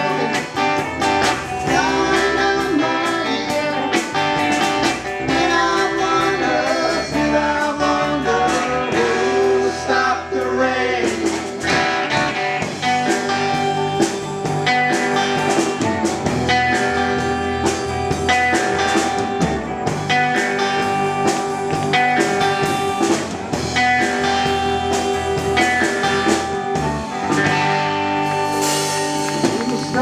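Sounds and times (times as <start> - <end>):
drum kit beat: 0.0 - 9.8, 11.0 - 30.0
electric and acoustic guitars: 0.0 - 30.0.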